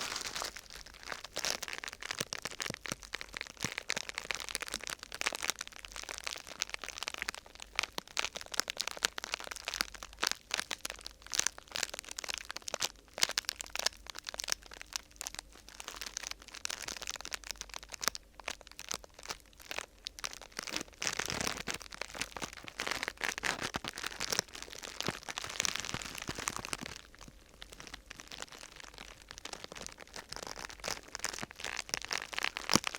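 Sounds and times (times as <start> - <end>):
sheet material crinkling: 0.0 - 5.6, 18.8 - 32.9.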